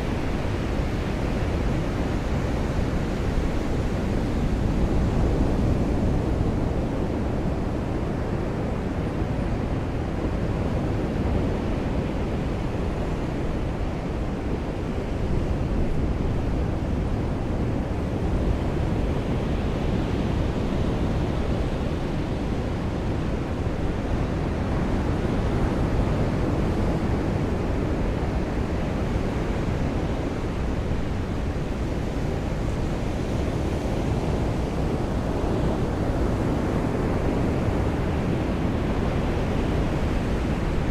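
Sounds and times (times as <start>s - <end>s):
ocean surf: 18.5s - 40.9s.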